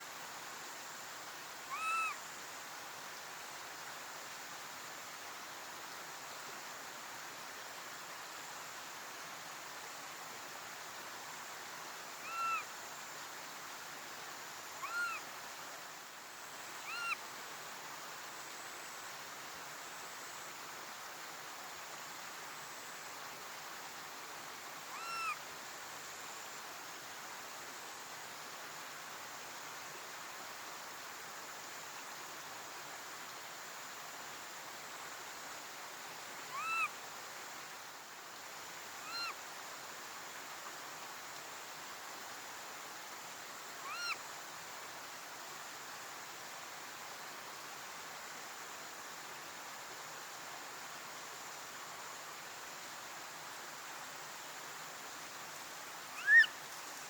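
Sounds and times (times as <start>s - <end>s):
steady background hiss: 0.0s - 57.0s
macaque coo calls: 1.7s - 2.2s, 36.5s - 36.9s, 56.2s - 56.5s.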